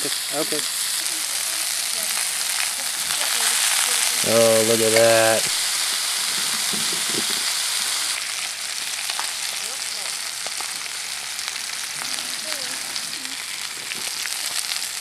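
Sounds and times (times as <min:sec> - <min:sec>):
patties sizzling in a skillet: 0:00.0 - 0:15.0.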